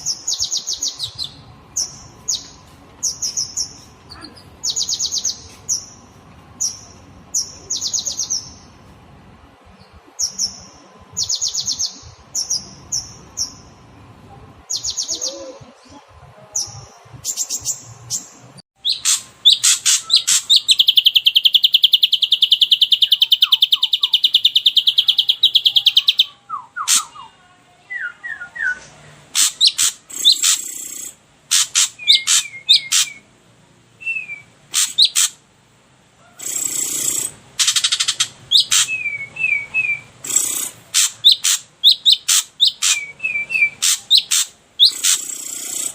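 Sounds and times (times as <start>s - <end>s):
fast rattling bird trill: 18.8s - 27.2s, 29.3s - 33.2s, 34.7s - 35.4s, 36.4s - 45.9s
harsh buzzy bird calls: 18.8s - 27.2s, 29.1s - 33.4s, 34.0s - 35.4s, 36.2s - 45.9s
sharp bird chirps: 18.8s - 27.2s, 29.4s - 33.3s, 34.0s - 35.4s, 36.4s - 45.9s.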